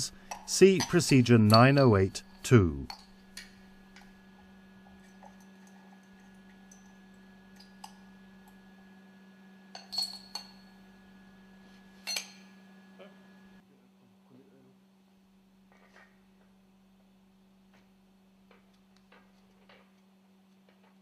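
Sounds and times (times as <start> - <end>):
metal tools clinking: 0.0 - 3.6, 9.8 - 10.6
steady low hum: 0.0 - 15.7.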